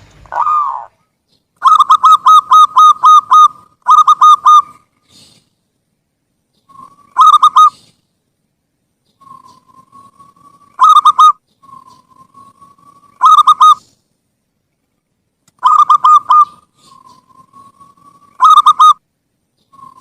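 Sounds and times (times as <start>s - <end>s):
dove cooing: 0.3s - 1.0s, 1.6s - 5.3s, 6.7s - 7.9s, 9.2s - 13.9s, 15.6s - 19.0s.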